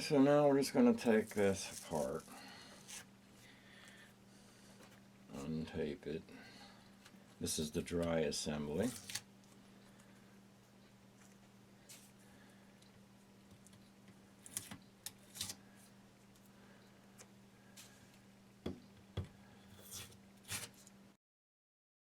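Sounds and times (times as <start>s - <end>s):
low electrical hum: 0.0s - 21.2s
tape tearing: 1.1s - 3.1s, 8.8s - 9.3s, 14.4s - 15.6s, 19.8s - 20.9s.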